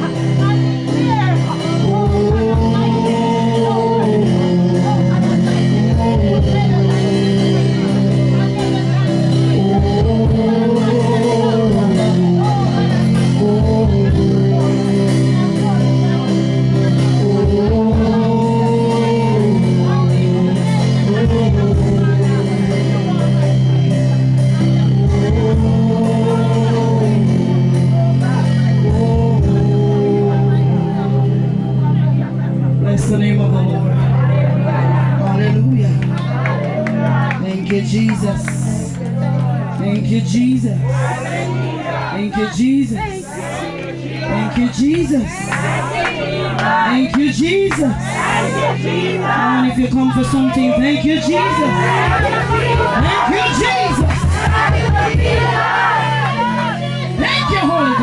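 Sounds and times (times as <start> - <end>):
person singing: 0.0 - 39.0, 39.6 - 58.0
band with guitar and drums: 0.0 - 58.0.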